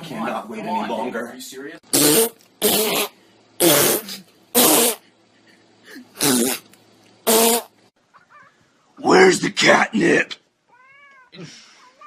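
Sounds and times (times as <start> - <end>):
buzzing fart noises: 1.9 - 5.1, 6.1 - 7.8.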